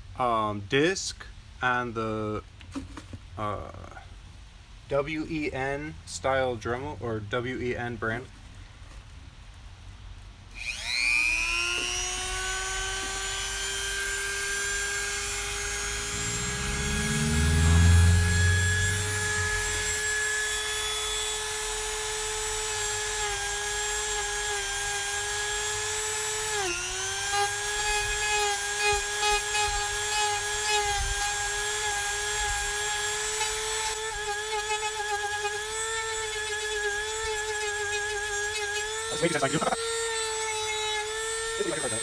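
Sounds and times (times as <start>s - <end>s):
rotary tool grinding: 10.5s - 42.0s.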